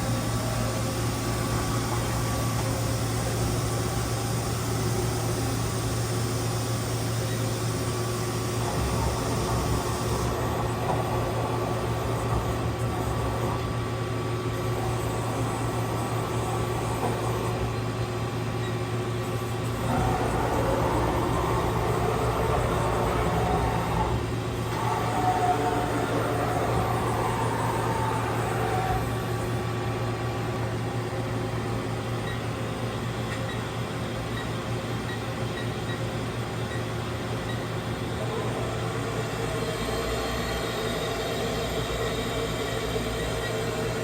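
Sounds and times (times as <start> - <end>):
wavering machine whine: 0.0 - 32.9, 36.9 - 44.0
machining center humming: 0.0 - 44.0.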